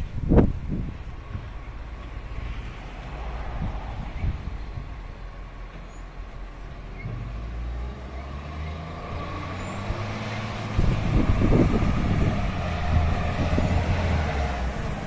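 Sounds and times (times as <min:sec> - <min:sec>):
diesel truck engine running: 0:08.8 - 0:15.0.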